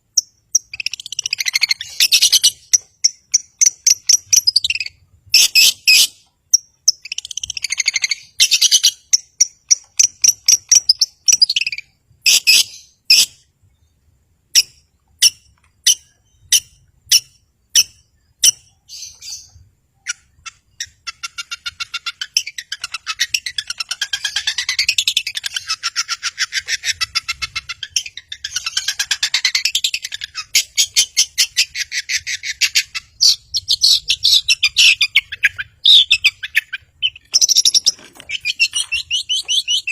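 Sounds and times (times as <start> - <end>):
bird chattering rapid notes: 20.1 - 39.9.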